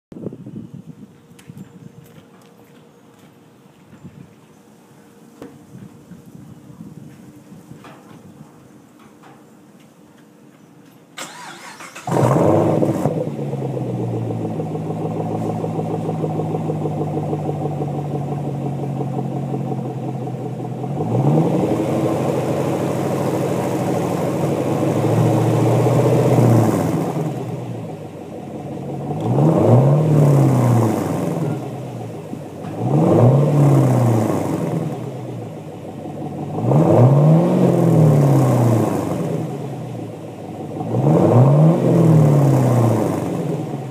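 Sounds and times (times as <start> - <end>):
car engine cranking and starting: 11.2 - 43.9
car engine idling and revving: 11.3 - 43.9.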